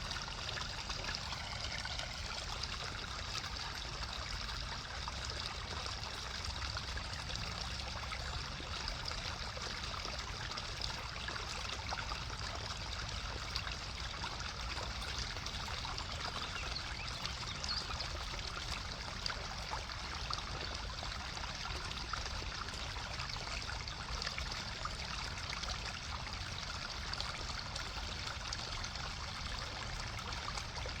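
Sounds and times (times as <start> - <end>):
water flowing over rocks: 0.0 - 31.0.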